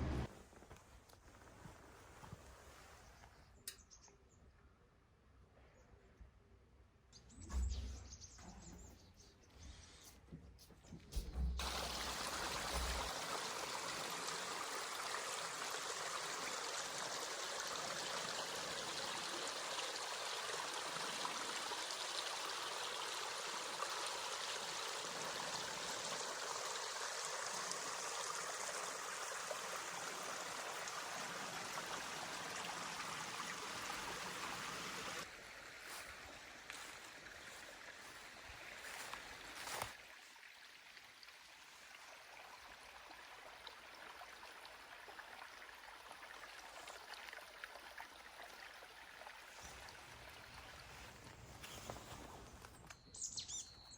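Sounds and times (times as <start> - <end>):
stream rushing over rocks: 11.6 - 40.0.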